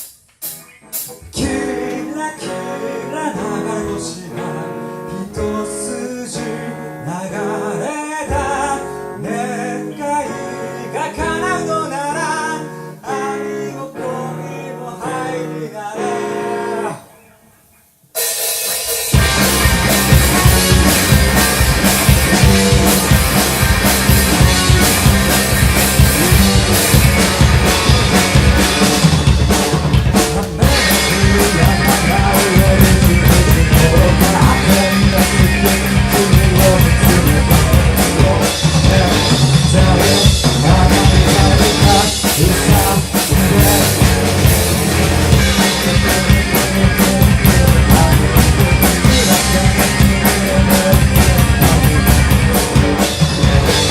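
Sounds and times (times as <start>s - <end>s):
drum kit beat: 0.0s - 2.2s, 18.1s - 53.9s
rock band playing: 0.0s - 6.8s, 18.1s - 53.9s.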